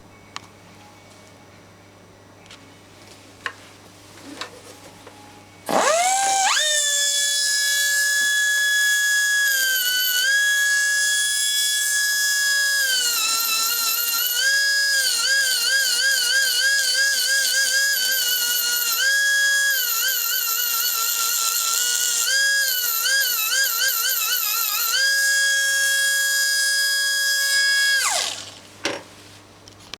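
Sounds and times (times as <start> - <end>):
grinder whining: 5.7 - 28.7.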